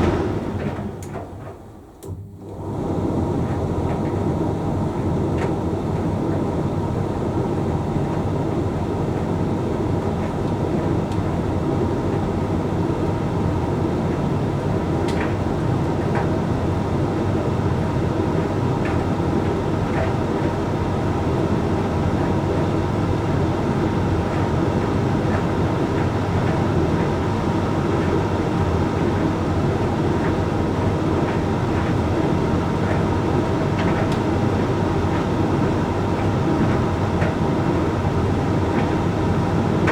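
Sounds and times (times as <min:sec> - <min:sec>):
tumble dryer humming: 0:00.0 - 0:03.2.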